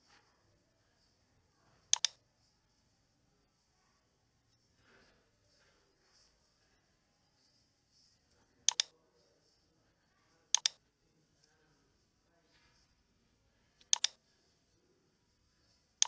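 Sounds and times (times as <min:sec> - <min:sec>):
computer mouse clicks: 0:01.9 - 0:02.2, 0:08.7 - 0:08.9, 0:10.6 - 0:10.8, 0:13.8 - 0:14.2.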